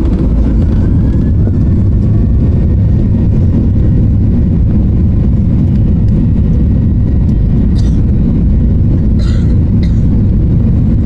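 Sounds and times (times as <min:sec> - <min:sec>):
faint high engine whine: 0:00.0 - 0:11.0
jet engine rumble from cabin: 0:00.0 - 0:11.0.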